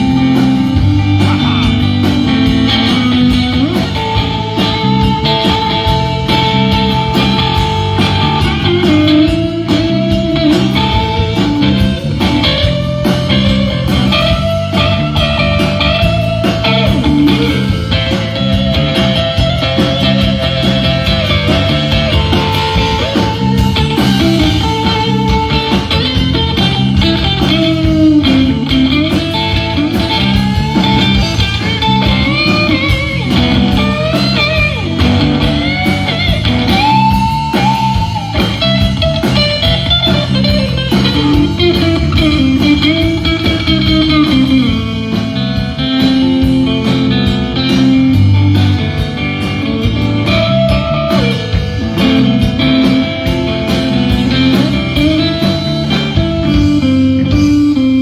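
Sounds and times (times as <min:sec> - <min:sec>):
bass guitar: 0:00.0 - 0:58.0
drums: 0:00.0 - 0:58.0
electric guitar lead: 0:00.0 - 0:58.0.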